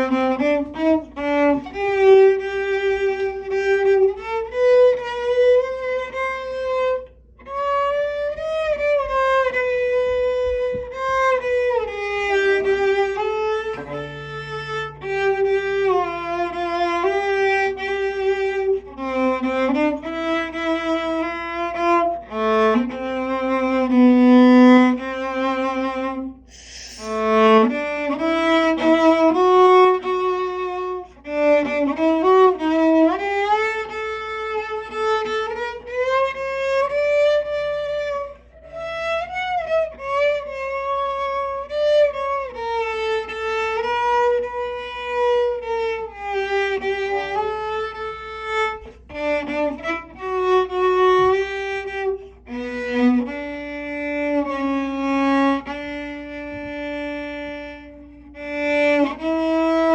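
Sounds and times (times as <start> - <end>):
cello melody: 0.0 - 59.9
brief noisy burst: 26.5 - 27.3.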